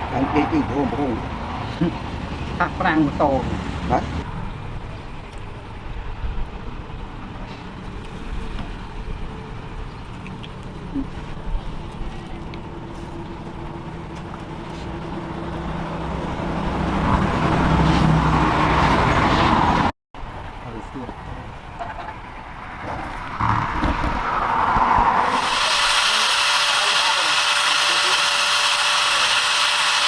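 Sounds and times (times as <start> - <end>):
motor humming: 23.4 - 30.0.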